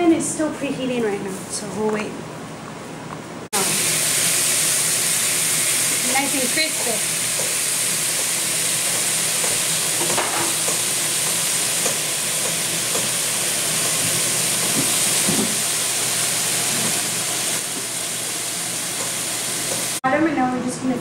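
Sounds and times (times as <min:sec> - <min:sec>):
meat sizzling on a griddle: 0:03.6 - 0:20.0.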